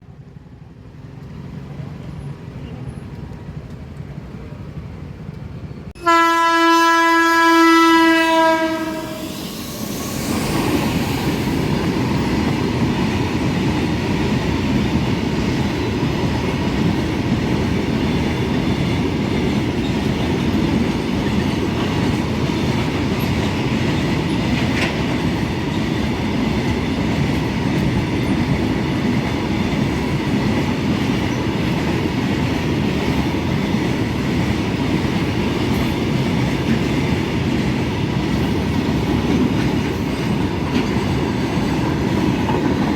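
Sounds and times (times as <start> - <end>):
locomotive horn: 6.0 - 9.5
train wheels clattering on rails: 9.0 - 42.9.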